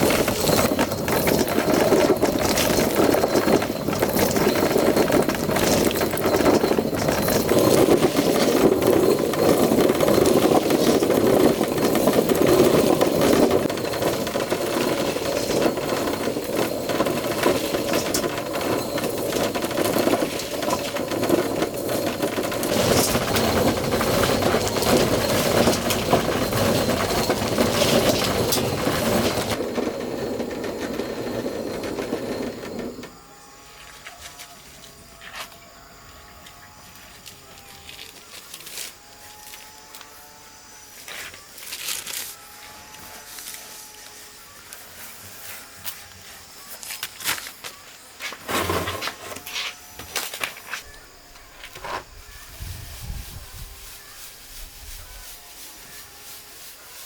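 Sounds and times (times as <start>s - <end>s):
small machine clattering: 0.0s - 33.2s.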